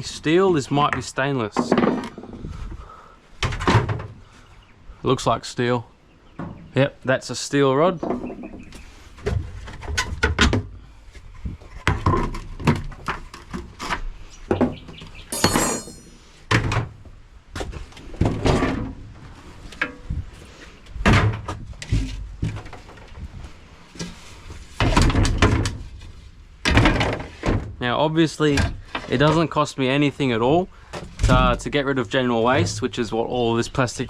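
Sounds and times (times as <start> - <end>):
plastic parts knocking and clattering: 1.5 - 2.4, 3.4 - 4.2, 11.8 - 13.9, 24.8 - 25.9, 26.6 - 27.8.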